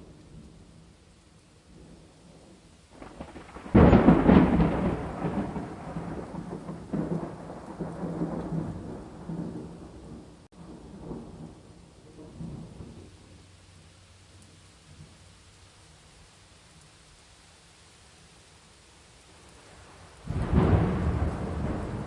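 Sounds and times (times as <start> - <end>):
steady rain: 0.0 - 22.0
thunder clap rolling: 3.0 - 13.1, 19.8 - 22.0.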